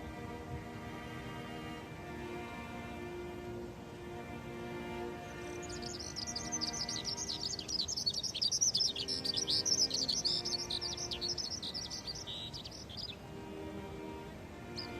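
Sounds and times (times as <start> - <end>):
birds chirping and twittering: 5.0 - 14.9.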